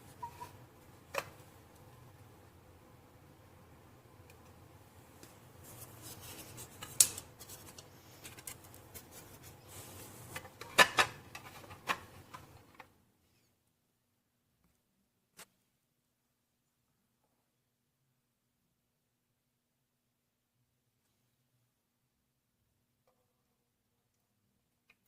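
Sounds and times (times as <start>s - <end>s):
objects rubbing and rustling: 5.2s - 13.6s.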